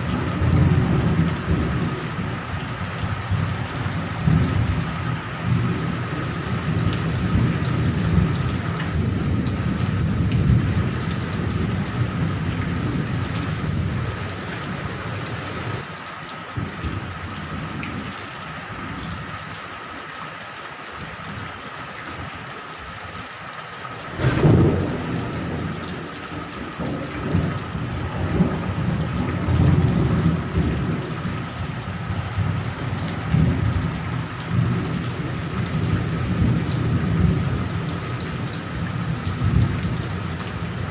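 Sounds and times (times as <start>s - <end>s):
thunder rumbling: 0.0s - 15.8s, 24.1s - 40.9s
steady rain: 0.0s - 40.9s
sharp thunderclap: 24.1s - 25.8s.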